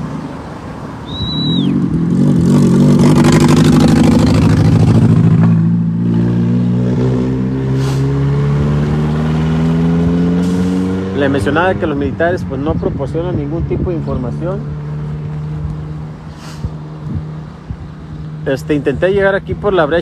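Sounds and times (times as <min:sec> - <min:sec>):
vehicle engine accelerating: 0:00.0 - 0:20.0
short high whistle: 0:01.0 - 0:01.8.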